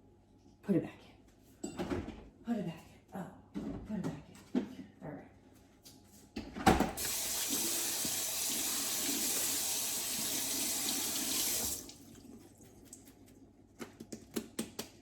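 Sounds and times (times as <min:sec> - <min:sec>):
tap running into sink: 0:07.0 - 0:09.6.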